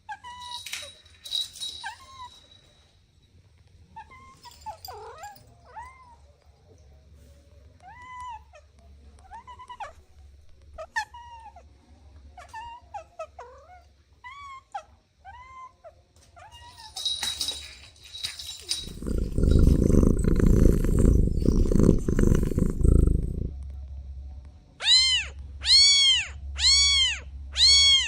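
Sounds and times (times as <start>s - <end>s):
kitten mewing: 18.8s - 23.6s.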